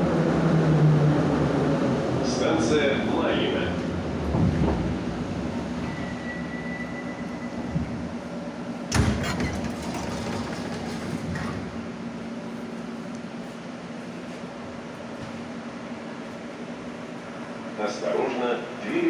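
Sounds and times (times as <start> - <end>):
train equipment humming: 0.0 - 19.0.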